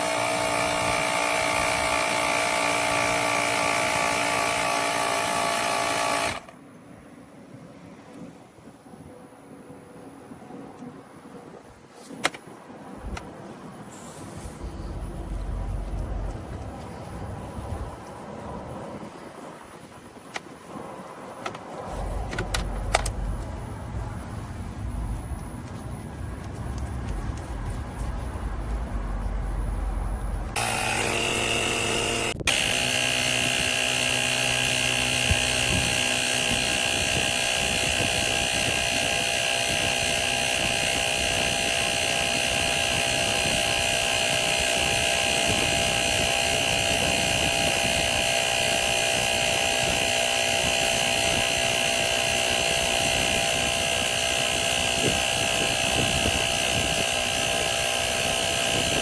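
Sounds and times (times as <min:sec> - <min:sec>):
tyre inflator compressor whine: 0:00.0 - 0:06.6, 0:29.5 - 0:59.0.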